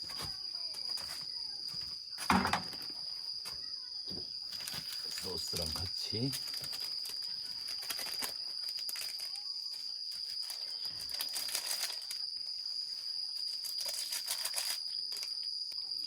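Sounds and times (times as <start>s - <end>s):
crickets chirring: 0.0s - 16.0s
faint clicks and crackles: 6.2s - 12.6s, 13.3s - 15.8s.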